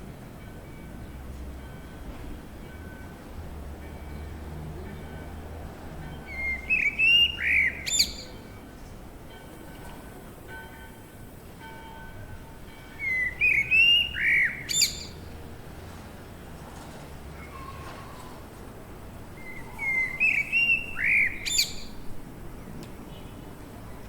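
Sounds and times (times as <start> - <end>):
bird calling: 13.0 - 15.2.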